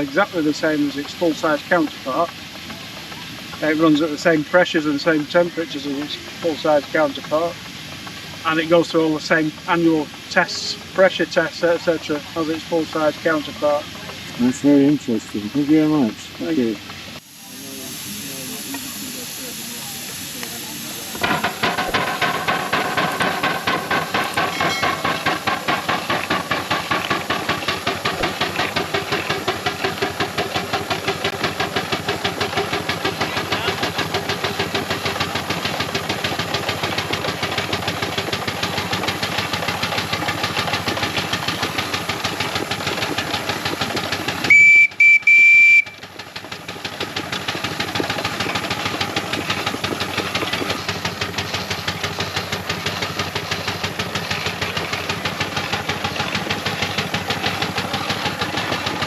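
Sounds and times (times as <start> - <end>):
steam engine exhaust beating: 0.0 - 59.0
steam whistle blasts: 17.4 - 25.6, 44.5 - 46.1.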